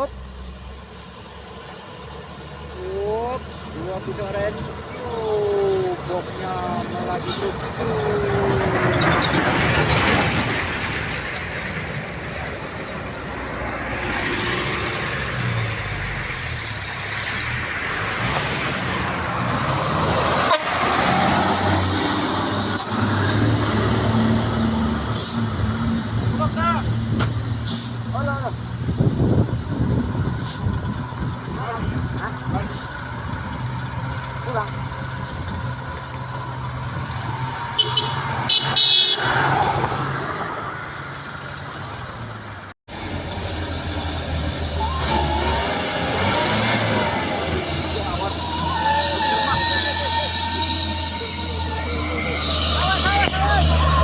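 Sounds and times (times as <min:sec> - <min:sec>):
truck diesel engine under load: 0:00.0 - 0:54.0
truck horn toots: 0:20.4 - 0:21.2, 0:37.7 - 0:39.4, 0:47.9 - 0:54.0
truck engine running under load: 0:21.3 - 0:37.8, 0:41.8 - 0:48.6.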